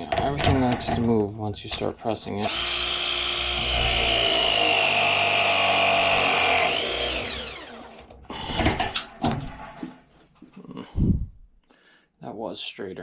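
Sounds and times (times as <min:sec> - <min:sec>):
press tool motor whining: 0:02.4 - 0:08.1.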